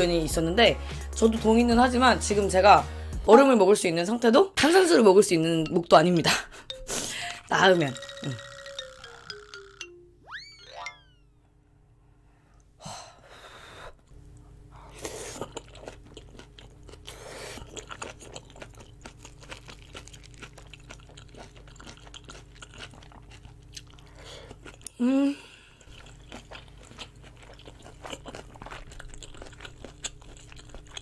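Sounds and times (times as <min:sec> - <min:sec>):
moist chewing with crunches: 0:14.9 - 0:25.0, 0:25.8 - 0:31.0.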